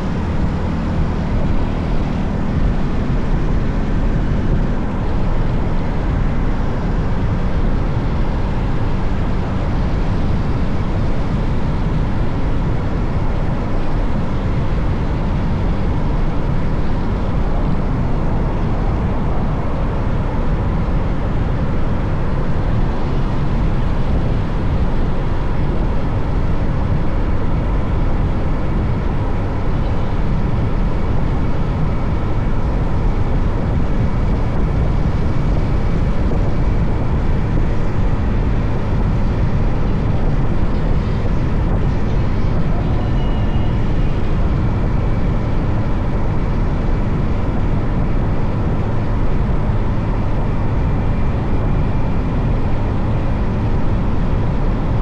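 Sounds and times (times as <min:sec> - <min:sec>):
wind rushing over microphone: 0:00.0 - 0:55.0
faint high tone: 0:42.6 - 0:44.1.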